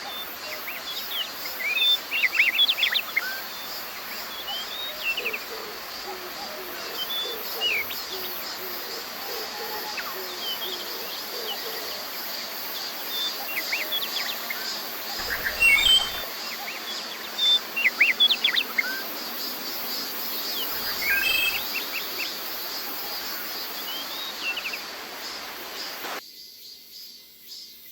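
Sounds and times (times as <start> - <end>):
cicadas droning: 0.0 - 17.1, 18.8 - 27.6
songbirds chirping: 15.2 - 16.3, 20.3 - 22.9.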